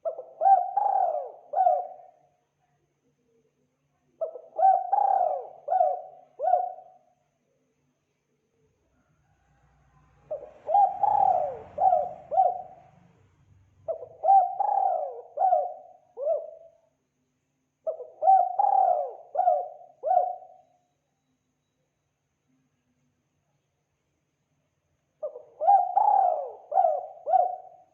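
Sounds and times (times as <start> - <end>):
dove cooing: 0.0 - 2.2, 4.2 - 7.0, 10.2 - 13.0, 13.9 - 16.8, 17.8 - 20.6, 25.2 - 27.9.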